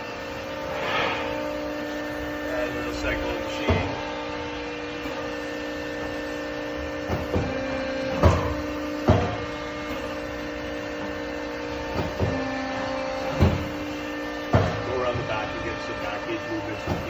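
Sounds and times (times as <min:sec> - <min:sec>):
hydraulic pump hum: 0:00.0 - 0:17.0.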